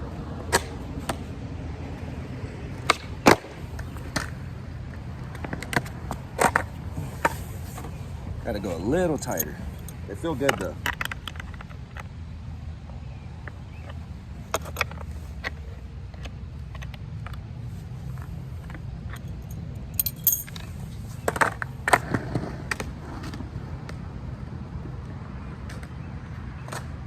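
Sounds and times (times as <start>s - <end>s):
steady low rumble: 0.0s - 25.6s
metal tool clinking on nuts: 9.2s - 10.6s, 19.1s - 20.7s.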